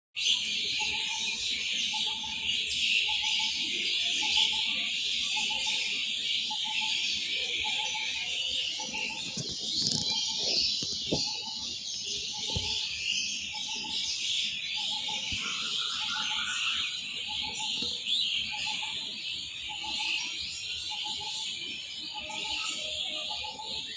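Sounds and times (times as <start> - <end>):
small birds chirping: 0.2 - 23.9.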